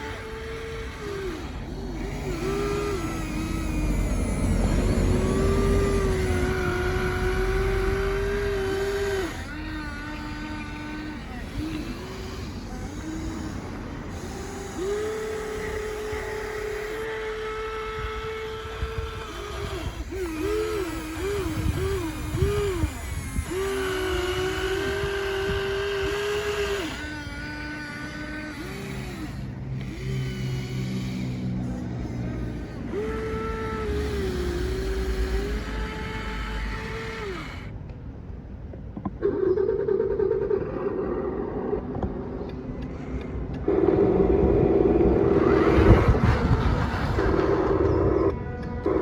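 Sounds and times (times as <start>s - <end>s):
toy electric motors whining: 0.0s - 49.0s
low rumble: 40.8s - 49.0s.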